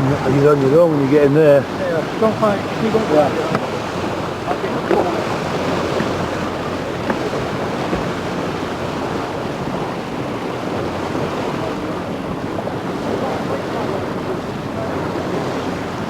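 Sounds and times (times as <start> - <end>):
rush of wind and water: 0.0 - 16.0
wind buffeting microphone: 0.0 - 16.0.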